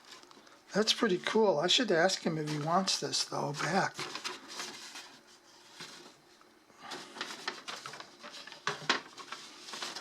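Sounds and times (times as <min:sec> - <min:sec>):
paper rustling: 0:02.2 - 0:06.2, 0:06.8 - 0:10.0.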